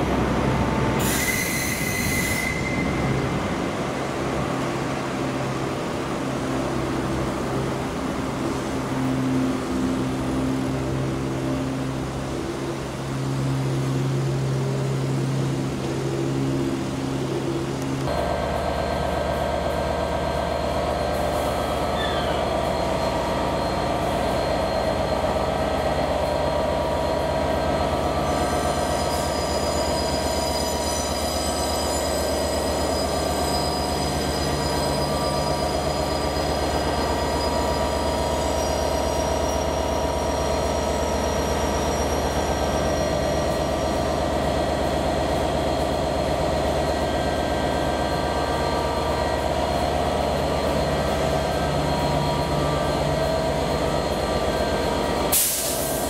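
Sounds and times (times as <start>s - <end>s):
train running drone: 0.0s - 56.0s
high thin whistling tones: 1.0s - 3.1s.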